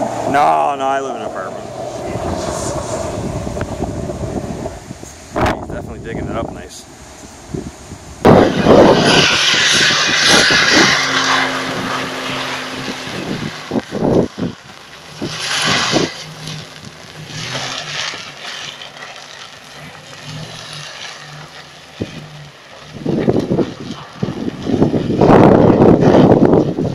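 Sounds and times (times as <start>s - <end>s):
tyres throwing up dirt: 8.2s - 26.9s
truck engine running under load: 8.3s - 26.9s.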